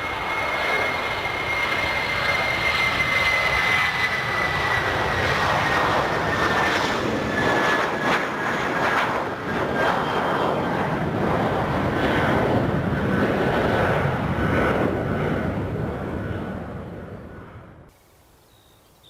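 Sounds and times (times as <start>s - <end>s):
jet airliner engines passing: 0.0s - 18.0s.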